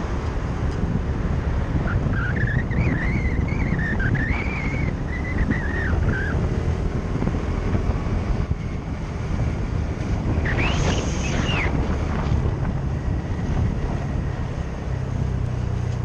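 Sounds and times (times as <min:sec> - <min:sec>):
motorbike road noise: 0:00.0 - 0:16.0
wind buffeting microphone: 0:00.0 - 0:16.0
wavering high whine: 0:09.4 - 0:12.4.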